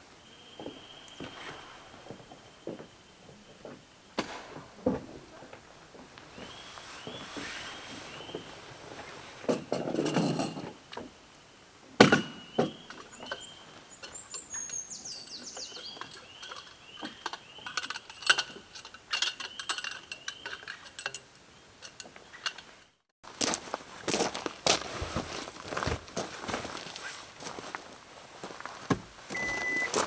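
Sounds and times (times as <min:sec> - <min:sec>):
rustle: 0:04.2 - 0:30.0
bird chirping: 0:06.3 - 0:08.6, 0:12.2 - 0:22.6
metal cookware clinking: 0:12.8 - 0:22.7.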